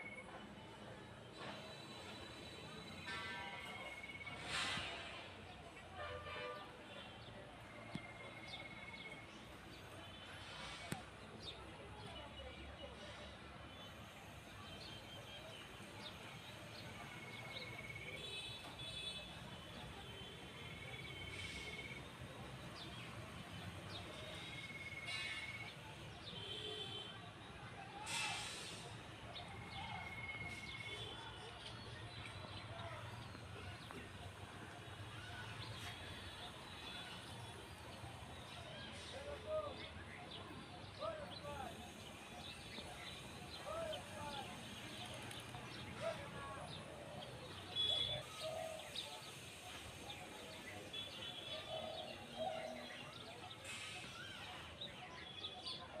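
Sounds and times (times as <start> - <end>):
small birds chirping and twittering: 28.1 - 56.0.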